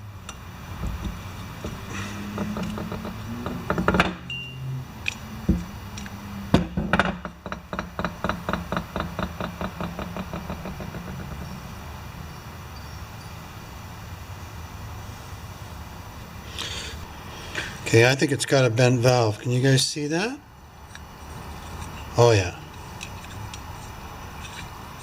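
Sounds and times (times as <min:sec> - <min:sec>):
metal knocks and clinks: 0:00.2 - 0:13.4.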